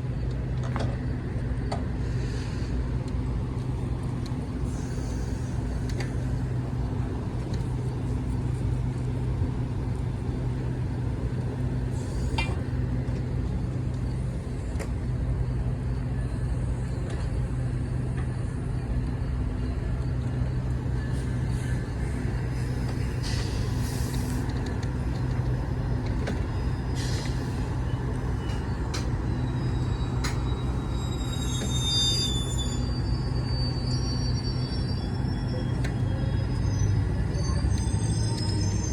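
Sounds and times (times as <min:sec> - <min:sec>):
high squeal: 0:26.4 - 0:38.9.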